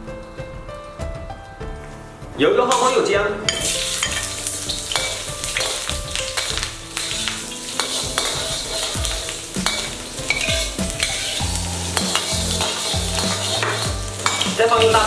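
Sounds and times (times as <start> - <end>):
ginger sizzling in hot oil: 2.7 - 15.0
metal ladle scraping wok: 3.5 - 15.0.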